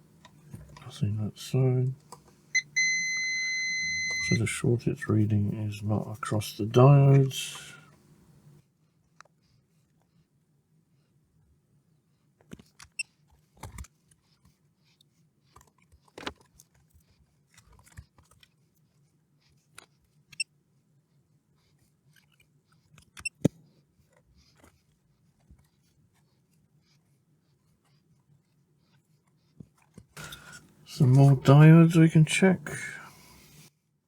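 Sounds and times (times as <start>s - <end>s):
faint steady low hum: 0.0s - 8.6s, 30.2s - 33.7s.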